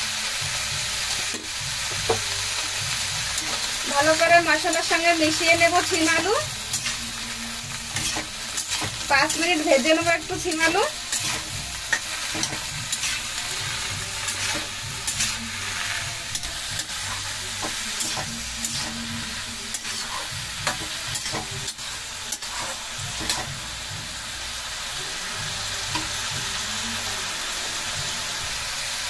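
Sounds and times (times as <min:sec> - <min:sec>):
vegetables sizzling in oil: 0:00.0 - 0:29.0
metal spatula scraping pan: 0:07.8 - 0:23.6.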